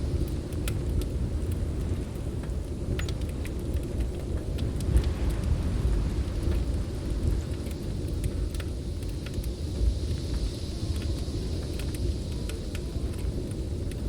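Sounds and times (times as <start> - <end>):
snowstorm wind rumbling: 0.0 - 14.0
wood fire crackling: 0.0 - 14.0
high hiss: 4.8 - 14.0.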